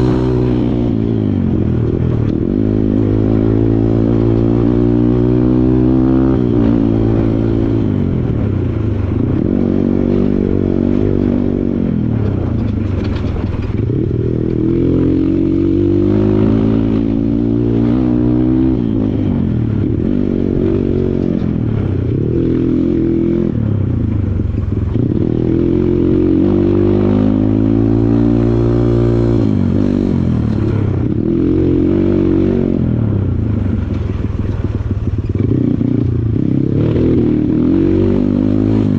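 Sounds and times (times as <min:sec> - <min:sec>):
dirt bike engine revving: 0:00.0 - 0:23.8, 0:24.6 - 0:38.9
knocks and rattles: 0:12.2 - 0:14.2.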